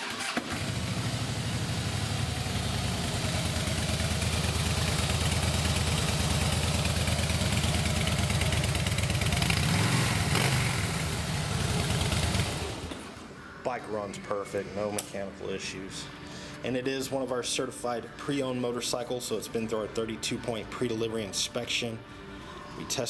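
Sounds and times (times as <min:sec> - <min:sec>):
motorcycle engine idling: 0:00.4 - 0:13.1.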